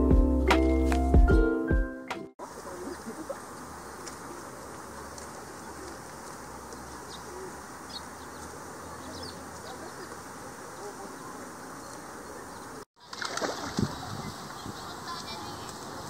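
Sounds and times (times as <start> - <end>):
small birds chirping: 2.4 - 12.9.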